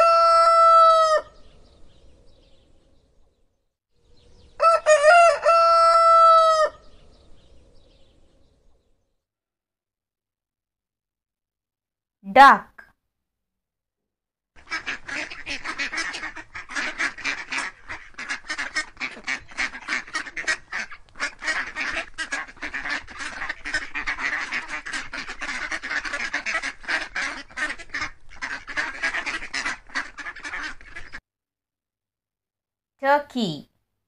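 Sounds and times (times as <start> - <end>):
ducks quacking: 14.6 - 31.2.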